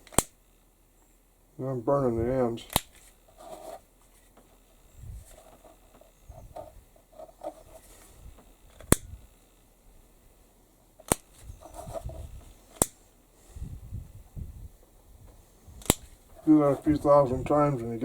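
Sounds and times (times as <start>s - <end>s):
soft handling noise: 2.2s - 9.2s, 10.8s - 13.8s, 14.7s - 18.0s
lighter wheel clicks: 12.8s - 13.0s, 15.8s - 16.0s.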